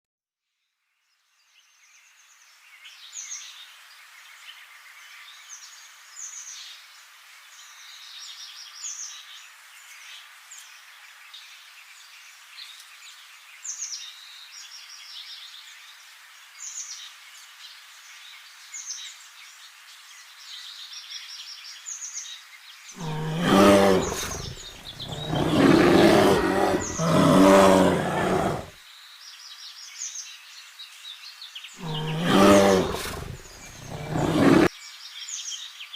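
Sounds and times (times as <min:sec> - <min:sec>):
large animal deep calls: 0:23.0 - 0:28.7, 0:31.8 - 0:34.7.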